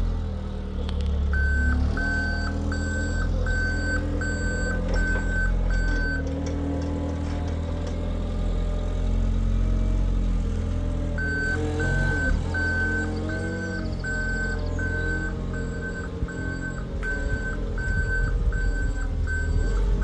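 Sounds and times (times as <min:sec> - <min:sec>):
forklift engine running: 0:00.0 - 0:20.0
reversing alarm beeping: 0:01.3 - 0:06.3, 0:11.2 - 0:20.0.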